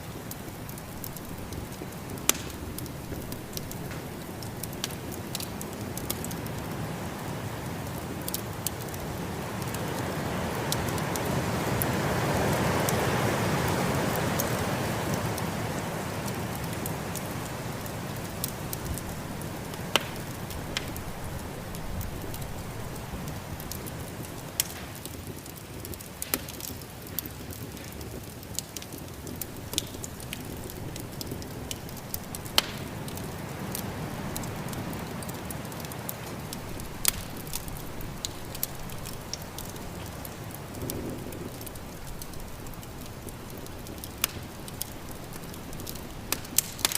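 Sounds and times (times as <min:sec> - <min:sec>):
snowstorm wind: 0:00.0 - 0:26.3
wood fire crackling: 0:00.0 - 0:46.9.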